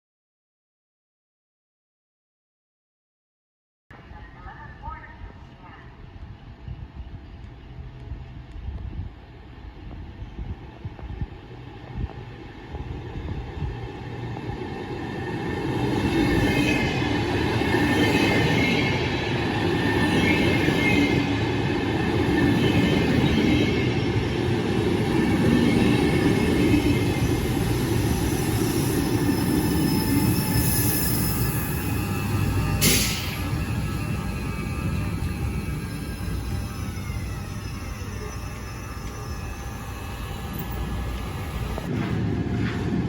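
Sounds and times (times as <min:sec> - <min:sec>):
train wheels rumbling on rails: 0:06.0 - 0:43.0
high wheel squeal: 0:27.0 - 0:41.9.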